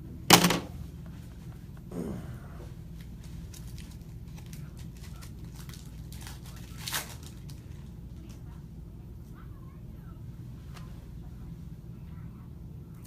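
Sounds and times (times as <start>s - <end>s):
plastic wrapping crinkling: 3.0s - 8.4s.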